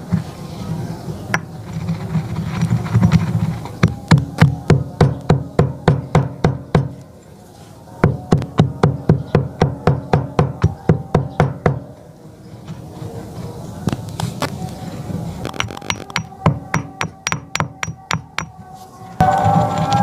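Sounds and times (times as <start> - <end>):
sharp knocks: 15.5 - 18.6.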